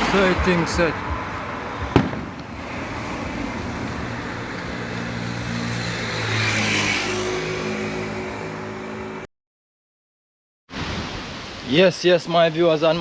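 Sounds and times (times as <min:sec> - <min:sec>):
tyres hissing on wet road: 0:00.0 - 0:09.2, 0:10.7 - 0:13.0
vehicle passing: 0:00.0 - 0:09.3.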